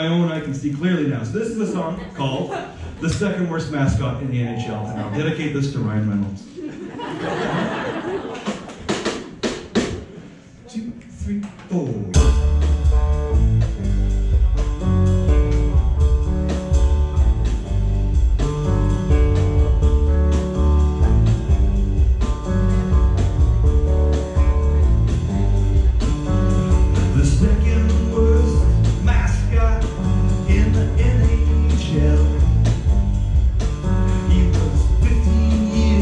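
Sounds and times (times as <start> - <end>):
live band playing blues rock: 12.2 - 36.0.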